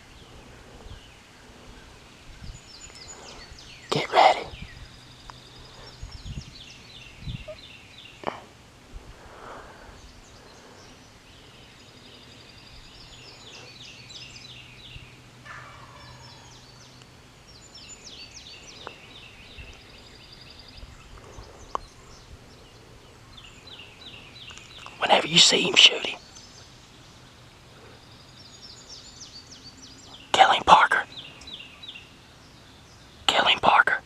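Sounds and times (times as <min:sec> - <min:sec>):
songbirds singing: 0:00.0 - 0:34.0
turkey gobbling: 0:15.4 - 0:16.5
faint clicks: 0:21.1 - 0:21.9, 0:24.4 - 0:25.0.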